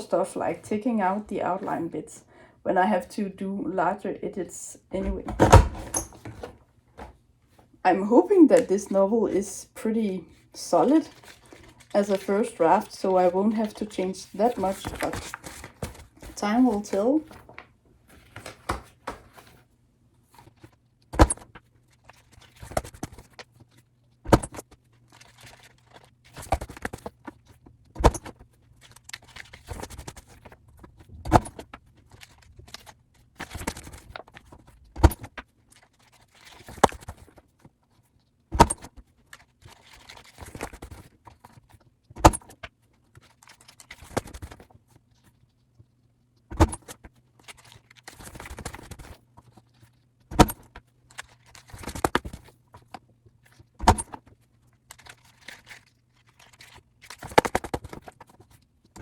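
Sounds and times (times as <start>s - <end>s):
paper whirring and rustling: 10.9s - 19.7s, 20.3s - 45.4s, 46.5s - 59.0s.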